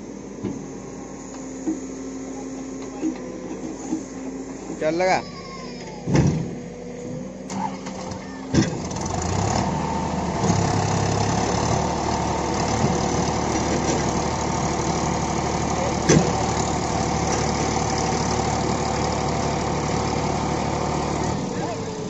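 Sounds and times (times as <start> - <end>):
heavy diesel engine running: 5.7 - 22.0.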